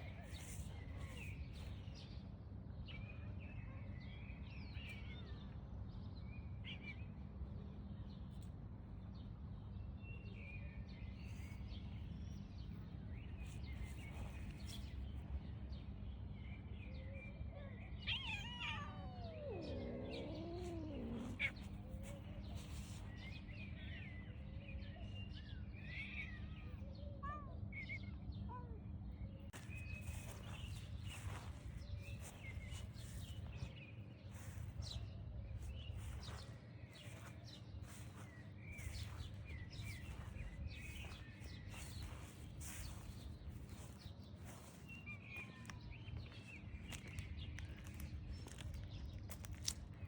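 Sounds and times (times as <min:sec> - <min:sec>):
small birds chirping: 0:00.0 - 0:05.6, 0:09.8 - 0:50.0
cat meowing: 0:18.0 - 0:21.9.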